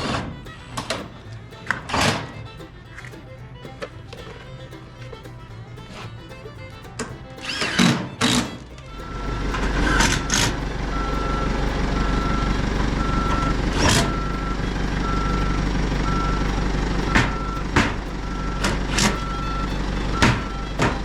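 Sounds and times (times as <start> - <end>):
heavy machine engine running: 0.0 - 21.0
loud metal clanks: 6.8 - 21.0
backup alarm beeping: 9.0 - 20.8.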